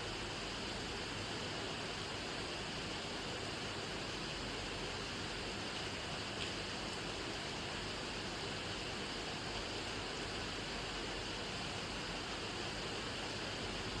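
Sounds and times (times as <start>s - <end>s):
steady rain falling: 3.8s - 10.3s.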